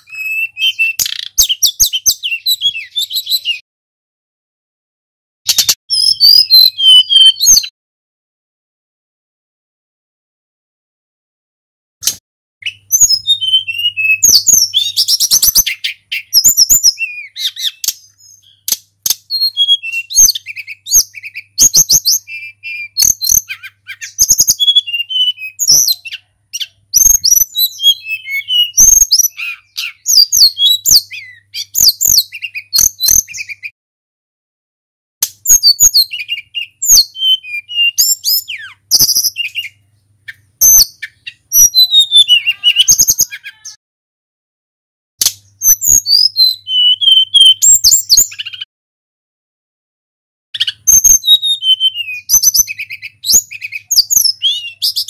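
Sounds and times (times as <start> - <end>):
small bird singing fast trills: 0.0 - 3.6, 5.5 - 7.7, 12.6 - 33.8, 35.4 - 43.8, 45.3 - 48.7, 50.6 - 55.0.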